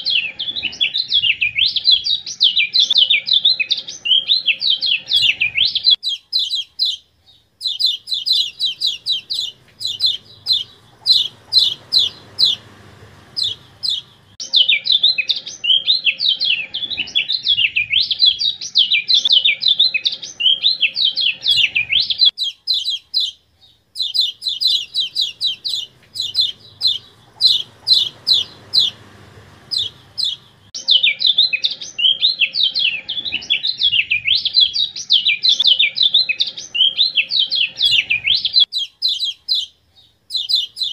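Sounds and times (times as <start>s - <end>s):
bird rapid high chirps: 0.0s - 40.9s.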